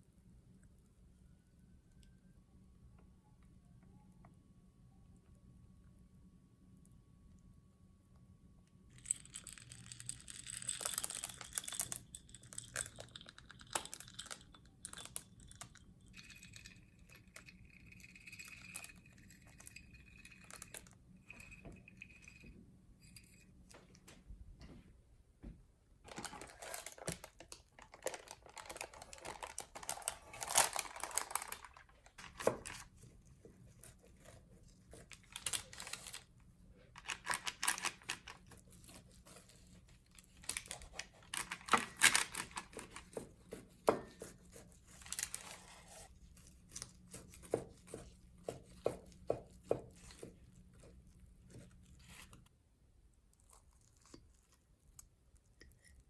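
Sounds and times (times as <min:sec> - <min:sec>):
faint low hum: 0:00.0 - 0:41.6
paper rustling and crinkling: 0:26.1 - 0:33.0, 0:33.6 - 0:36.3, 0:37.0 - 0:49.0.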